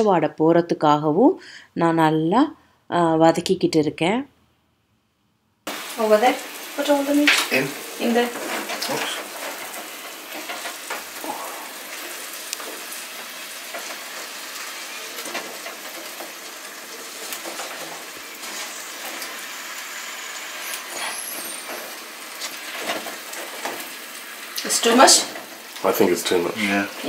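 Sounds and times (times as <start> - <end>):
food sizzling in a pot: 5.7 - 27.0.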